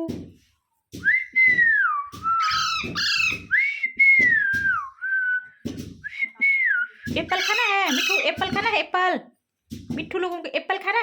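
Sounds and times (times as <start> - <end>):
parrot whistling: 1.6 - 3.8.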